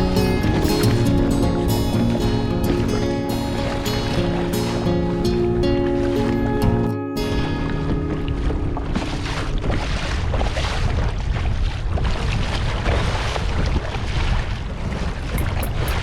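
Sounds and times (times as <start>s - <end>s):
water splashing against kayak hull: 0.0s - 16.0s
wind buffeting microphone: 0.0s - 16.0s.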